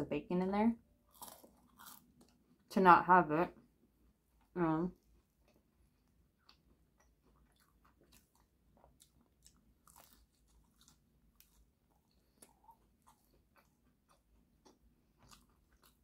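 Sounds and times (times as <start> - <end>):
biting and chewing sandwich: 1.1 - 2.5, 5.0 - 16.0.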